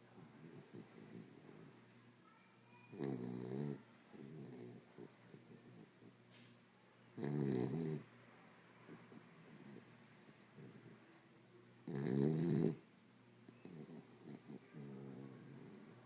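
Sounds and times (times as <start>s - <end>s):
dog snoring: 0.4s - 1.8s, 2.9s - 6.1s, 7.2s - 8.1s, 8.9s - 11.0s, 11.8s - 12.8s, 13.6s - 16.0s.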